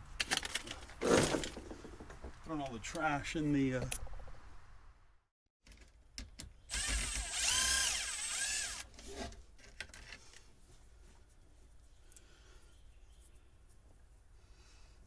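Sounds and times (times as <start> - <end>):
power drill motor whine: 6.7 - 8.9.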